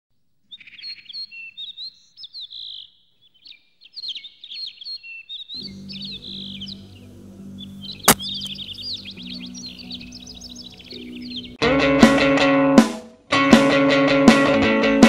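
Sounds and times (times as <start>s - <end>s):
songbird chirping and trilling: 0.4s - 11.6s
low steady music: 5.6s - 11.6s.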